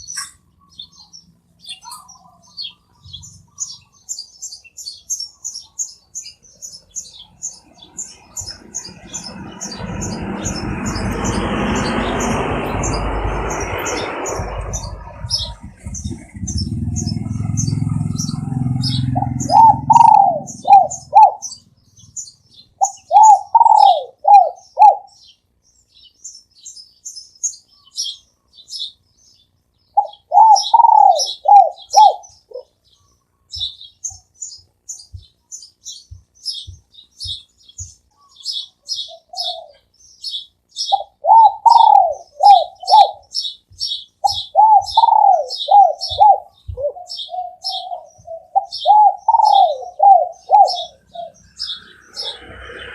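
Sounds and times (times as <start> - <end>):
small birds chirping: 0.0 - 52.9
dove cooing: 13.6 - 21.6, 22.8 - 25.2, 30.0 - 32.8, 38.2 - 39.9, 40.9 - 52.9.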